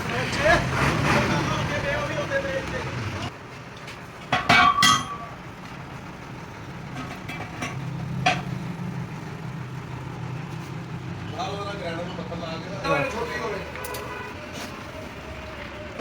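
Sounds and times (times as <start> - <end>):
metal-on-metal clanks: 4.3 - 5.3.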